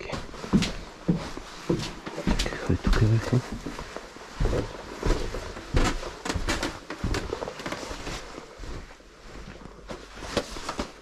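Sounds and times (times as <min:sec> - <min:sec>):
rustling: 0:03.4 - 0:11.0.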